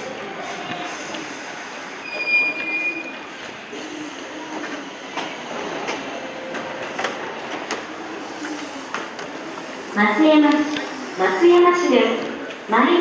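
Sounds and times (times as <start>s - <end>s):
wheel squeal: 2.0s - 3.2s.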